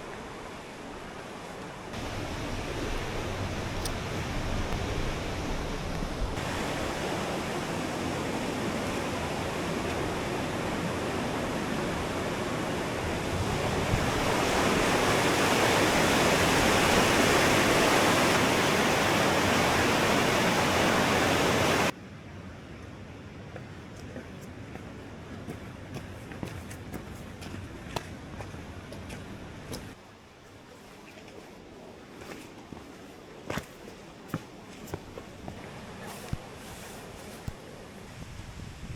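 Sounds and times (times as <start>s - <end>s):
waterfall rushing: 1.6s - 21.9s.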